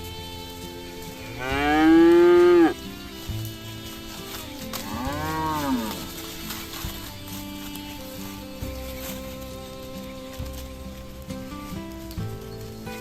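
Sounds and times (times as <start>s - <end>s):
background music: 0.0s - 13.0s
cow mooing: 1.2s - 2.8s, 3.8s - 6.7s.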